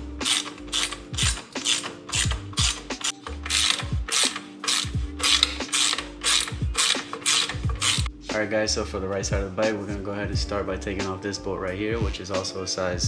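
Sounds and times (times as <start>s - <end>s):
background music with deep bass: 0.0s - 13.0s
ratchet wrench clicking: 0.2s - 8.1s.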